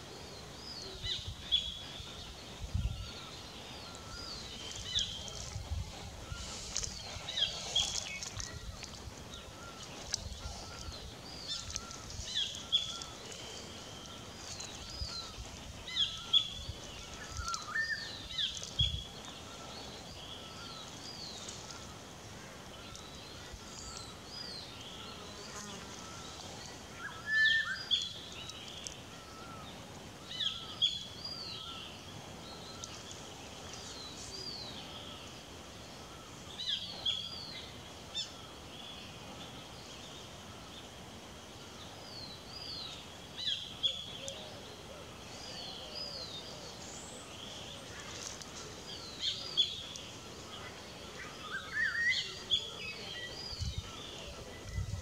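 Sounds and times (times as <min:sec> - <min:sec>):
bird chirping: 0:00.0 - 0:22.0
insect buzz: 0:03.1 - 0:29.7.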